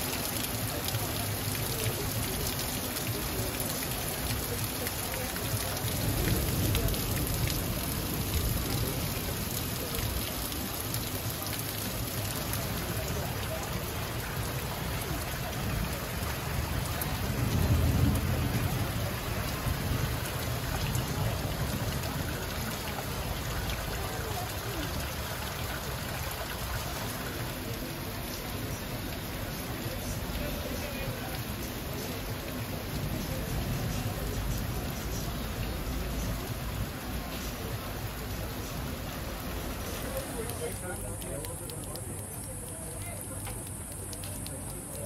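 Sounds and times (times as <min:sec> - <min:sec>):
heavy rain pouring on roofs: 0:00.0 - 0:45.0
water dripping off eaves: 0:00.0 - 0:45.0.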